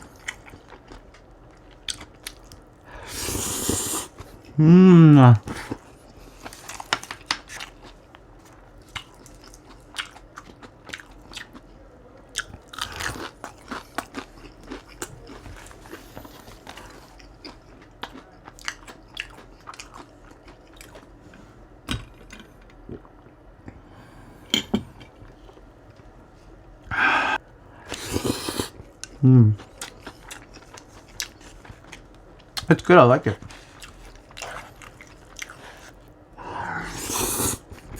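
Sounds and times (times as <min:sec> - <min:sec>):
chewing and crunching: 0:00.0 - 0:02.8, 0:05.4 - 0:21.5, 0:27.9 - 0:36.1.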